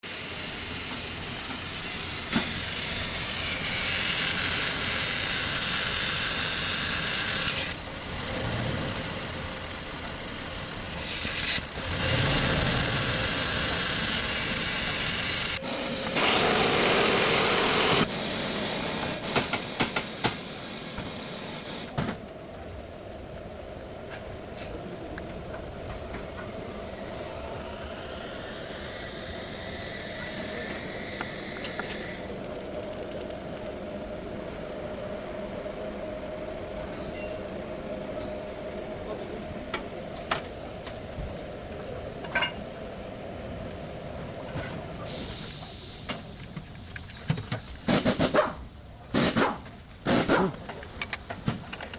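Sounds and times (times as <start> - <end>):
loud hissing noise: 0.0 - 22.0, 25.8 - 32.6, 43.0 - 51.9.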